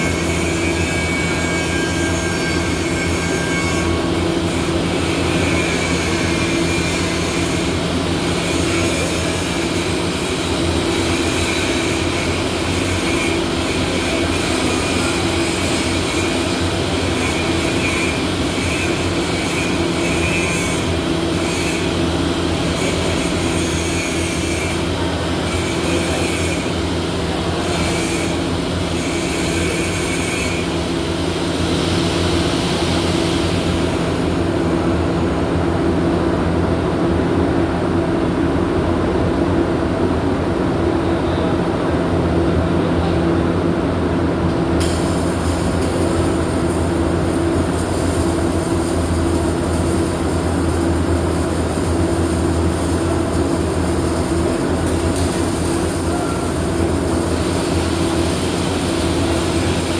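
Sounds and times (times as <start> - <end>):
high-pitched machine whine: 0.0 - 36.1, 44.7 - 59.9
machine humming: 44.8 - 59.9.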